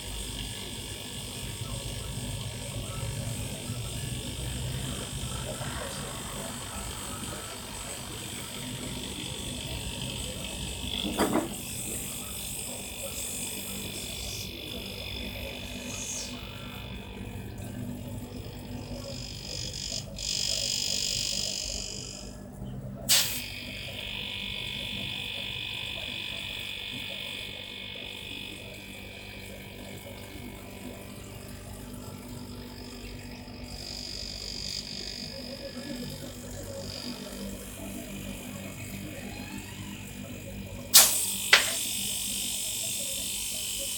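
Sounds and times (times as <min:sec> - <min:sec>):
compressor humming: 0:00.0 - 0:43.9
air hissing: 0:23.1 - 0:23.5, 0:40.9 - 0:43.9.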